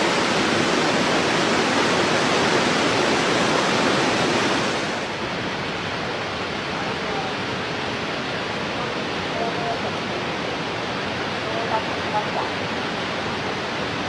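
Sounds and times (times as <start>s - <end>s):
water rushing through a dam: 0.0s - 14.0s.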